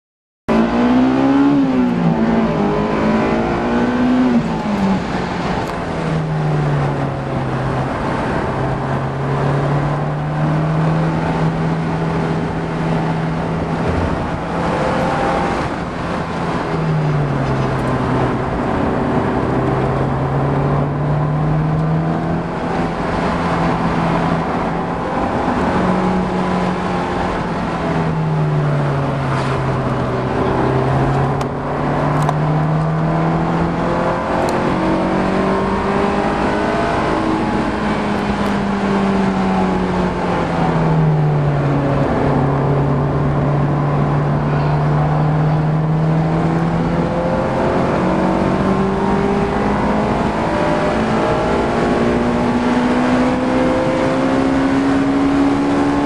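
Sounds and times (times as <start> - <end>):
car engine from inside cabin: 0.5 - 56.0
road and wind noise: 0.5 - 56.0.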